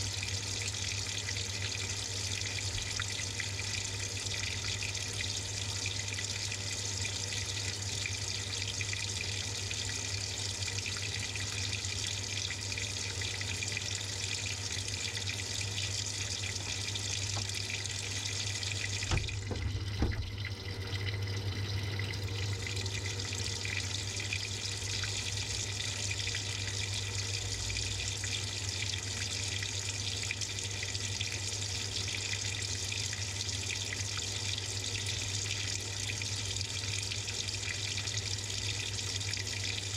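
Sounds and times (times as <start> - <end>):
water pouring into washing machine: 0.0 - 39.9
short knocks: 19.1 - 20.4.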